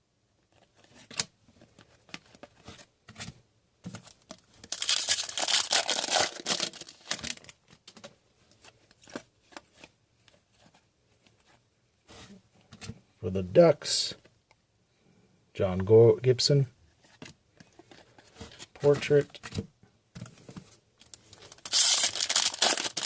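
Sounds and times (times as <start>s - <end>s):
foil pack ripping and crinkling: 4.7s - 7.6s, 21.5s - 23.0s.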